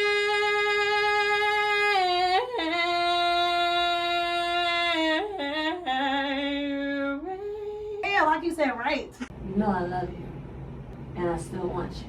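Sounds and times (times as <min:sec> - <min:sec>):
person singing long notes: 0:00.0 - 0:08.0.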